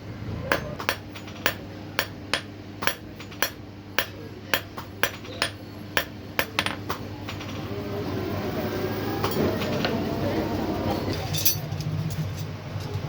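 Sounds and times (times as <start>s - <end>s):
steady low hum: 0.0s - 12.1s
hammer striking metal on anvil: 0.5s - 7.1s.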